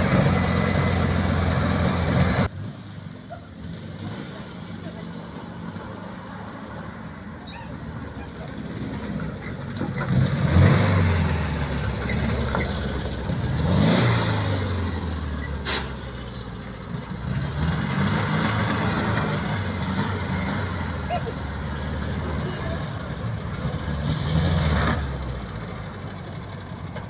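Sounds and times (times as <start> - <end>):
car engine revving: 8.6 - 26.2.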